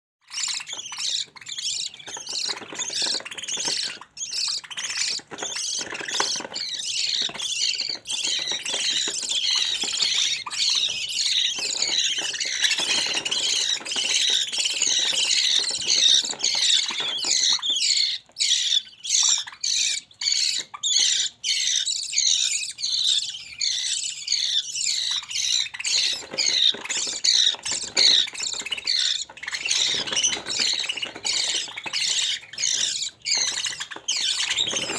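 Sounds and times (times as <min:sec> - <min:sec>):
budgerigar chicks squawking: 0:00.2 - 0:34.9.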